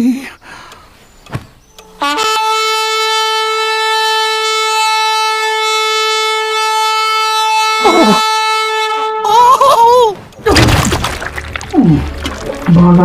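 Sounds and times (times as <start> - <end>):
horn blowing long note: 1.9 - 9.6.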